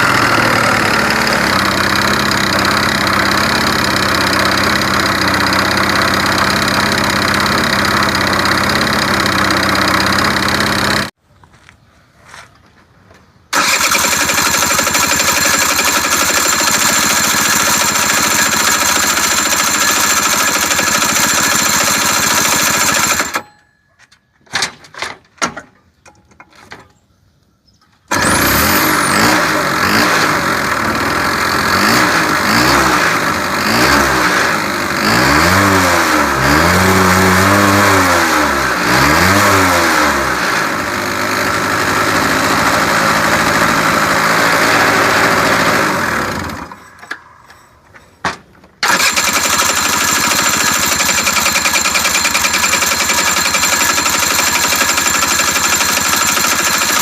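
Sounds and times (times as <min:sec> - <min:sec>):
scooter engine running and revving: 0:00.0 - 0:11.2, 0:13.6 - 0:23.4, 0:28.1 - 0:46.8, 0:48.8 - 0:57.0
engine clicks: 0:13.5 - 0:23.4, 0:46.5 - 0:57.0.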